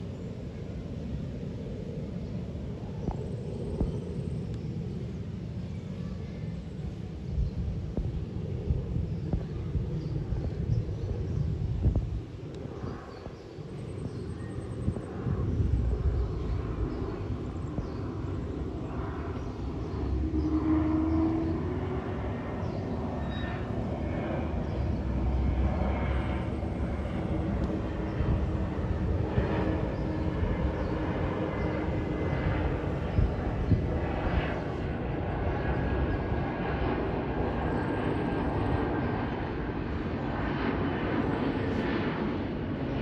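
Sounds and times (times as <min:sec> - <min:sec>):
jet engines running: 0:00.0 - 0:43.0
faint high whine: 0:11.9 - 0:35.0.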